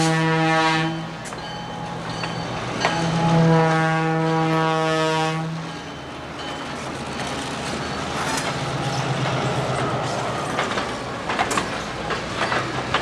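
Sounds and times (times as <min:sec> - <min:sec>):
steel wheels rumbling on rail: 0:00.0 - 0:13.0
clicks and clanks over rail joints: 0:06.4 - 0:13.0.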